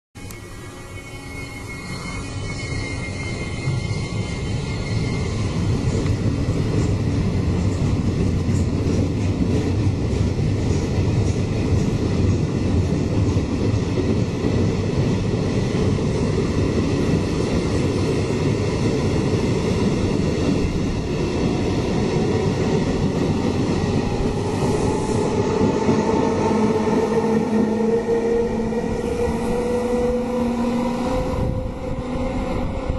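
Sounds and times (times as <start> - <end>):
train wheels rumbling on rails: 1.4 - 32.9.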